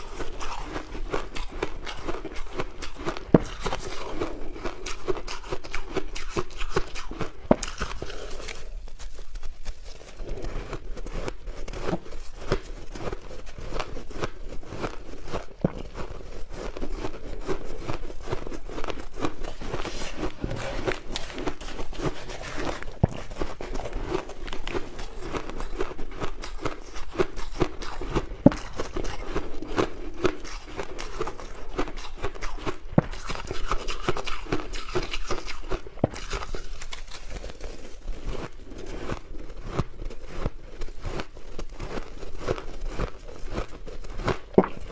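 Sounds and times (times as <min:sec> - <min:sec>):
chewing crushed ice: 0:00.0 - 0:44.9.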